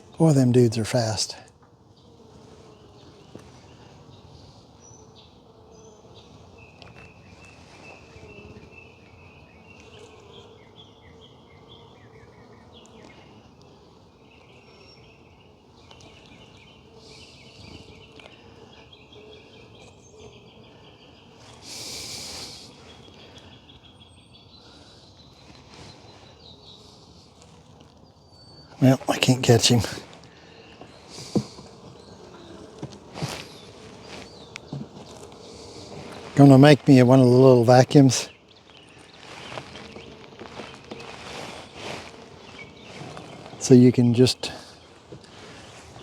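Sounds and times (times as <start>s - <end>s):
honeybees humming: 0.0s - 46.0s
small birds chirping: 0.0s - 46.0s
loud hiss: 21.6s - 22.8s.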